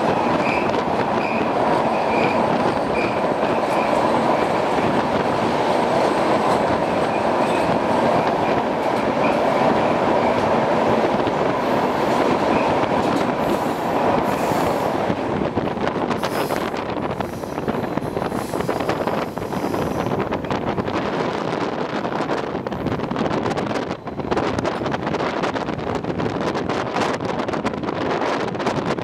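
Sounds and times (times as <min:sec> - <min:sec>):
train wheels rumbling in tunnel: 0:00.0 - 0:29.0.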